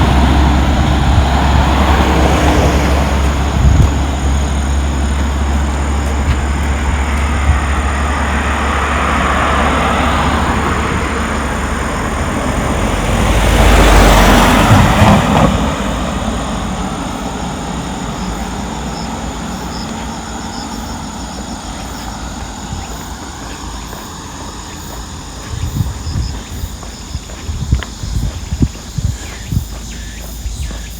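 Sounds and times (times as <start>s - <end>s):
low steady rumble: 0.0s - 9.6s
motor vehicle passing: 0.0s - 30.9s.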